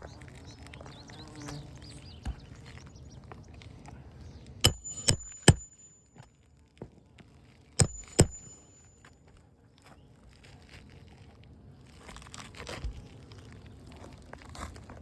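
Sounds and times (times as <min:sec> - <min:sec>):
hammer striking metal: 0:04.7 - 0:06.0, 0:07.8 - 0:08.9.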